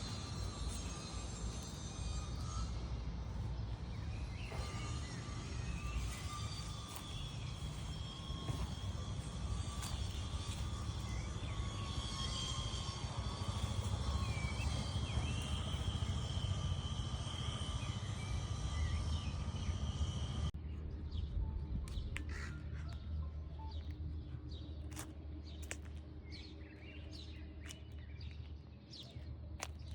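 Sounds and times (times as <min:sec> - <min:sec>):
high-pitched drone: 0:00.0 - 0:20.6.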